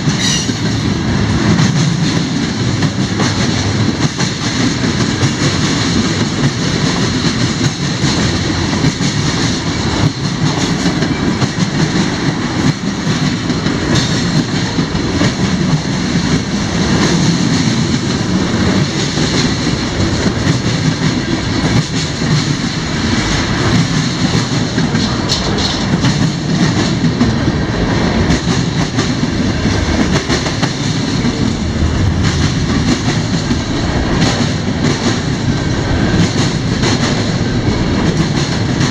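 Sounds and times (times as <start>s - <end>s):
freight train cars rolling past: 0.0s - 38.9s
wheels clicking over rail joints: 1.5s - 27.6s.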